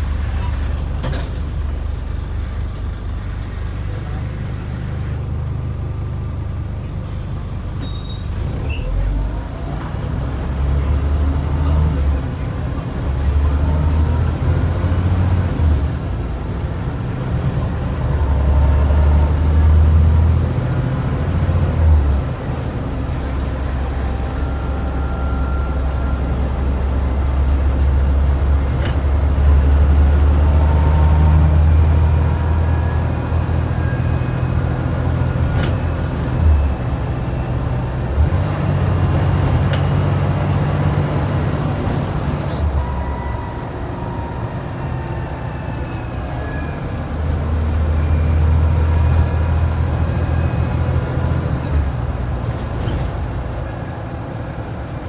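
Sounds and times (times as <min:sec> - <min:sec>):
air brakes hiss: 0:00.0 - 0:05.2, 0:07.0 - 0:09.1, 0:23.1 - 0:24.6
bus diesel engine pulling: 0:00.0 - 0:55.0.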